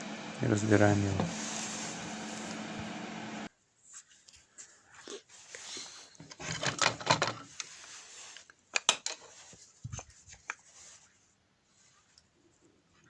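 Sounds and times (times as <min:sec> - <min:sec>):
rustling: 0:01.2 - 0:08.6
plastic parts clicking and rattling: 0:06.2 - 0:07.7.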